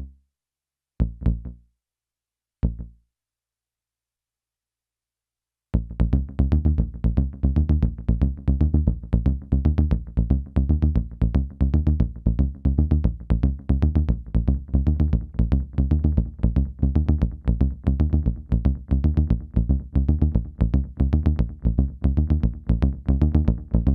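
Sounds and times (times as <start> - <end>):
synthesizer bass notes with delay: 5.8 - 23.9.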